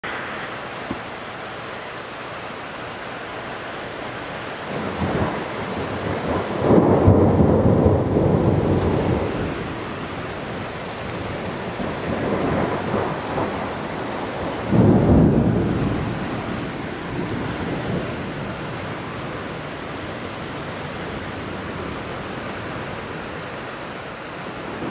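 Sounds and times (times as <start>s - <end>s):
steady rain: 0.0s - 24.9s
thunder rumbling: 4.7s - 23.3s, 24.6s - 24.9s.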